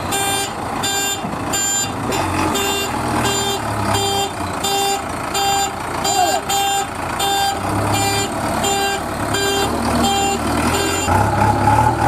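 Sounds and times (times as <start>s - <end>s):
reversing alarm beeping: 2.6s - 11.2s.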